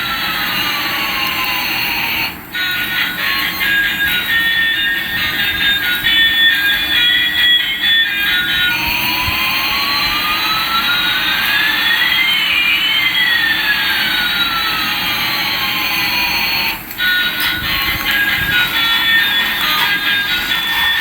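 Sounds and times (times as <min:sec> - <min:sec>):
toy jet engine rushing hiss: 0:00.0 - 0:21.0
electronic whistles rising and falling: 0:11.0 - 0:14.6.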